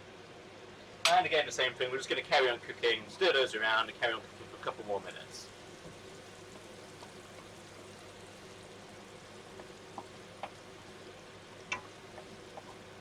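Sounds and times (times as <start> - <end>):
vegetables sizzling in oil: 5.2 - 13.0.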